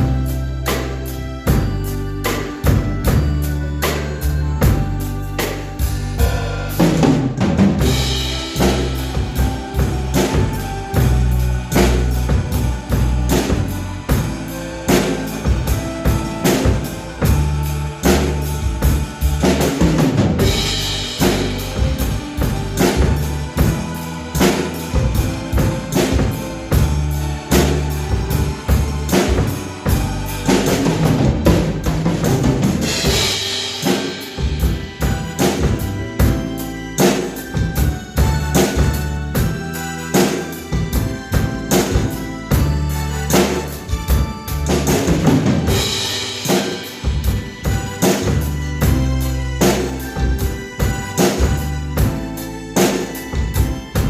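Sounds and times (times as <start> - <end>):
backing music: 0.0 - 54.0
bass drum and snare beat: 0.0 - 54.0
cymbal crashes: 5.4 - 36.4, 43.4 - 50.2.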